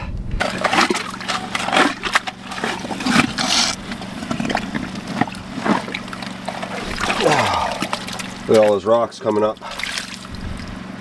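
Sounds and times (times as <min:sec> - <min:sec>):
engine running steadily: 0:00.0 - 0:11.0
rock and gravel scraping: 0:00.4 - 0:08.9.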